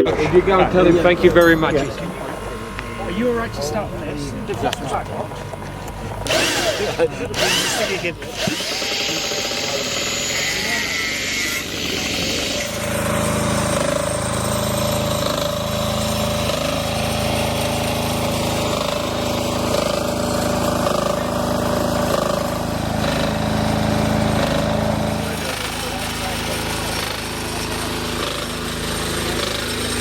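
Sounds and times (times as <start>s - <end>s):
machine motor humming and whining: 0.0s - 30.0s.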